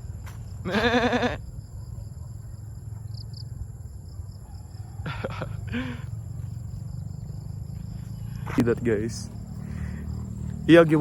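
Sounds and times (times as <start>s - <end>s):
goat bleating: 0.6s - 1.4s.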